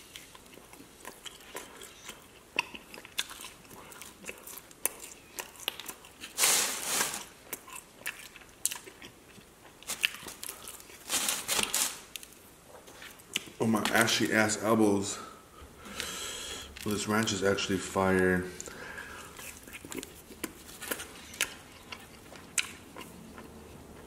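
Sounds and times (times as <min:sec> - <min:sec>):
person chewing: 0:00.0 - 0:06.4, 0:07.0 - 0:11.1, 0:18.6 - 0:24.0.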